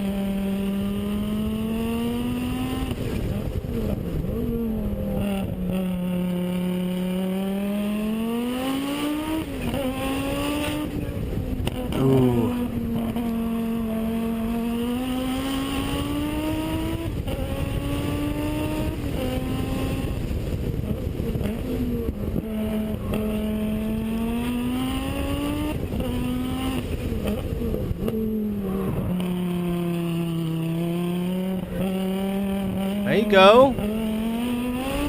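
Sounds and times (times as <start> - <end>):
rally car engine revving through gears: 0.0 - 35.0.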